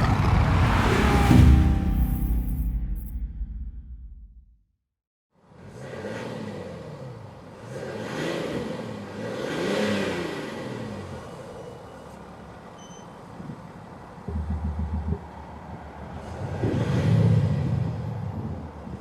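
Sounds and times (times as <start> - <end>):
car engine revving: 0.0 - 3.1, 5.4 - 12.5
synthetic exhaust note: 0.0 - 3.9.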